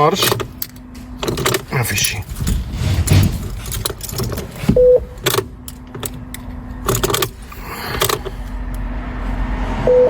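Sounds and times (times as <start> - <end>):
ignition key clicks: 0.0 - 2.3
low steady hum: 0.0 - 9.6
keyring jangling: 3.2 - 8.4.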